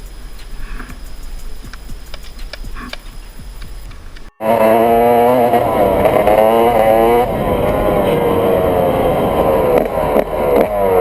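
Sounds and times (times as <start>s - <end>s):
dirt bike engine revving: 2.7s - 11.0s.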